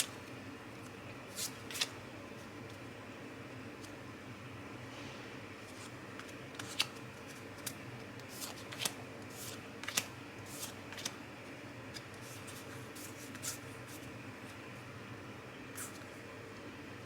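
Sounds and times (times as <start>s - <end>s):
trading cards snapping and swishing: 7.6s - 11.1s.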